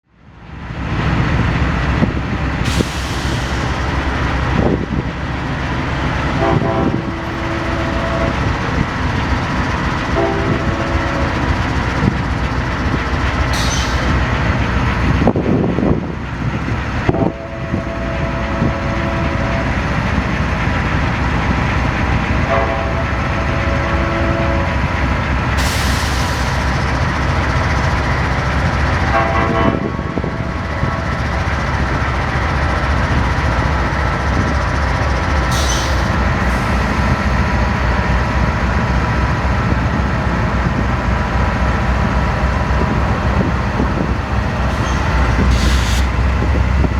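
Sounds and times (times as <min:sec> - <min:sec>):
diesel locomotives rumbling past: 0:00.0 - 0:46.9
locomotive air horn blasts: 0:06.3 - 0:08.8, 0:10.1 - 0:11.6, 0:17.2 - 0:19.8, 0:22.4 - 0:24.8, 0:29.1 - 0:30.3, 0:44.0 - 0:46.7.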